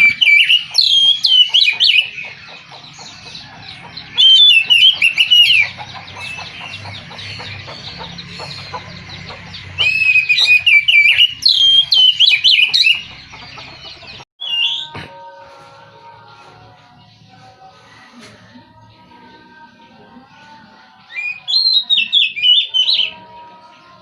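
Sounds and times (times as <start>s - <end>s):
bird whistling rapid notes: 0.0s - 2.2s, 9.8s - 13.0s, 14.4s - 14.9s.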